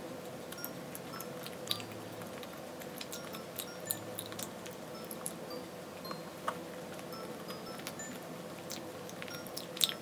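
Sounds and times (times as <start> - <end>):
faint steady hum: 0.0 - 10.0
person chewing soft bun: 0.1 - 5.5, 6.7 - 10.0.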